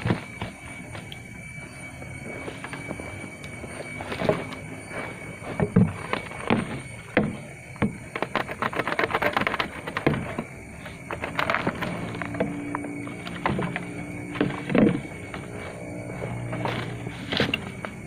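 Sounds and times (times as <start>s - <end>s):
bamboo knocks and cracks: 5.6s - 10.4s.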